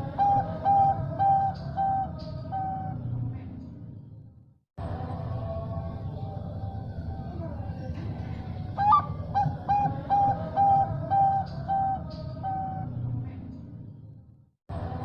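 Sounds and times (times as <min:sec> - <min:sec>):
dove cooing: 0:00.0 - 0:02.9, 0:07.9 - 0:13.0.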